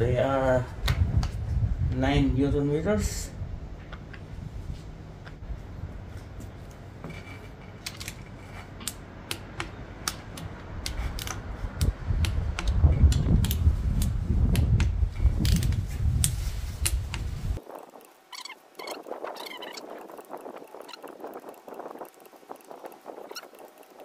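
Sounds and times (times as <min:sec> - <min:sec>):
ratchet and torque wrench clicking: 0:07.8 - 0:24.0.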